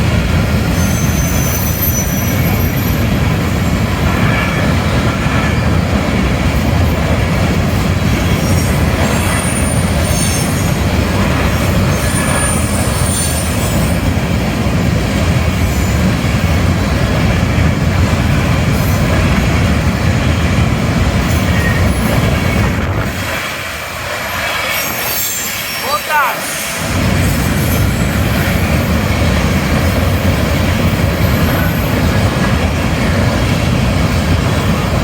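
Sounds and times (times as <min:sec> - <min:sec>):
train wheels rumbling on rails: 0:00.0 - 0:35.0
faint high wheel squeals: 0:00.8 - 0:04.6, 0:08.3 - 0:10.8, 0:11.8 - 0:14.0, 0:24.6 - 0:26.8.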